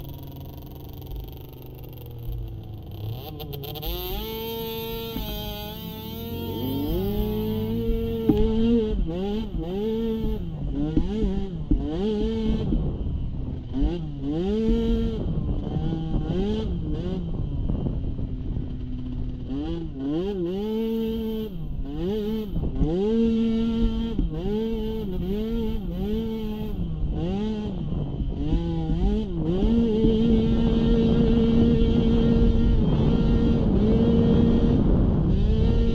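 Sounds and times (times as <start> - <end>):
small atv engine revving: 0.0 - 35.9.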